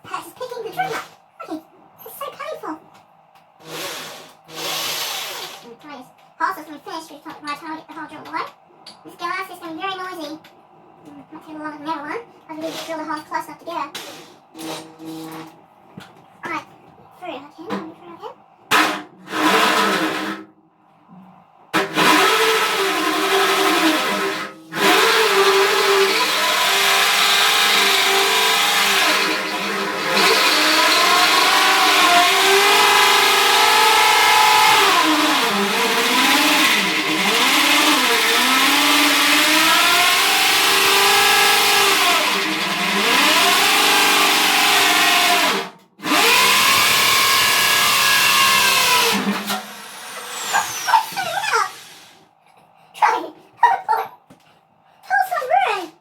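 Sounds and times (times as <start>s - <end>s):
electric drill drilling: 3.6s - 5.7s, 21.8s - 52.2s.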